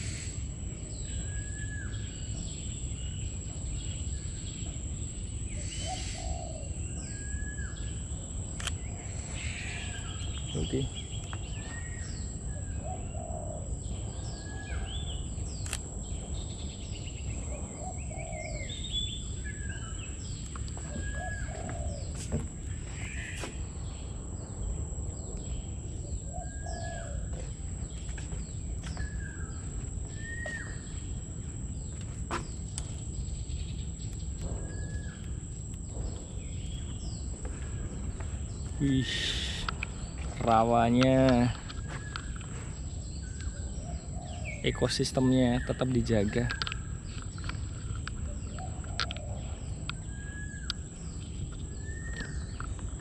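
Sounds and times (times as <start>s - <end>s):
birds chirping and whistling: 0.0s - 53.0s
sharp clicks: 8.6s - 8.8s, 15.6s - 15.9s, 39.2s - 40.0s
low rumble: 27.4s - 40.5s.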